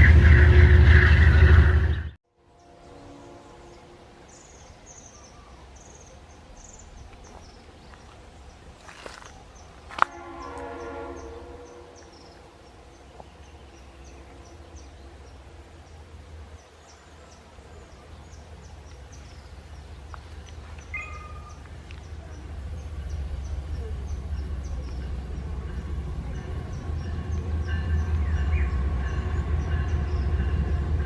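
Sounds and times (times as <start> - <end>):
low rumble: 0.0 - 2.2
insects chirping: 4.4 - 31.0.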